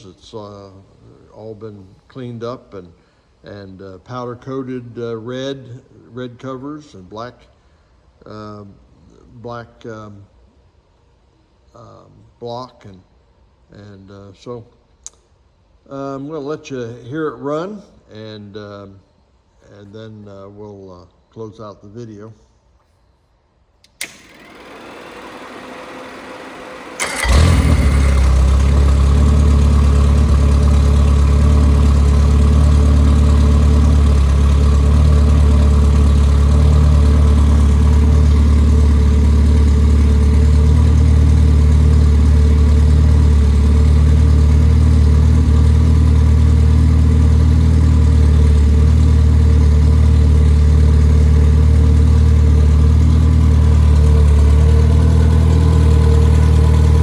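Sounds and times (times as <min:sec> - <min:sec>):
engine cranking: 0:23.9 - 0:57.0
car engine idling: 0:24.1 - 0:57.0.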